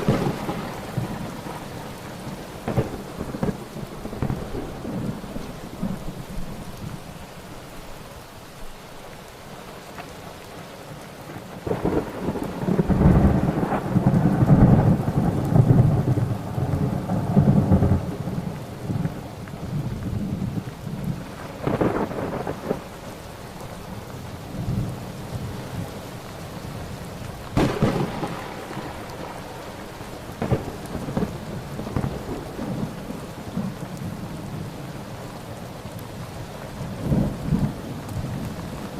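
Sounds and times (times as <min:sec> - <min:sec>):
thunder rumbling and clapping: 0:00.0 - 0:07.0, 0:11.6 - 0:19.2, 0:27.5 - 0:34.5
steady rain: 0:00.0 - 0:38.9.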